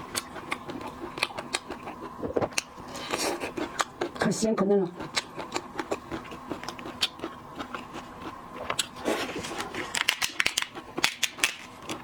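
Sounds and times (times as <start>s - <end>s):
seafood shells cracking: 9.9s - 12.0s.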